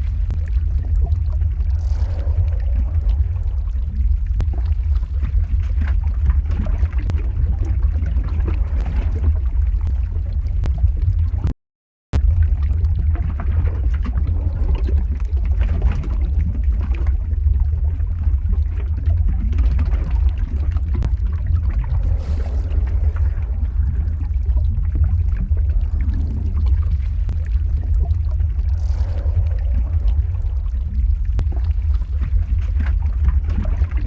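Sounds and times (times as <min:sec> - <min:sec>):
lava bubbling and gurgling: 0:00.0 - 0:11.5, 0:12.2 - 0:34.0
deep rumble: 0:00.0 - 0:11.6, 0:12.2 - 0:34.0.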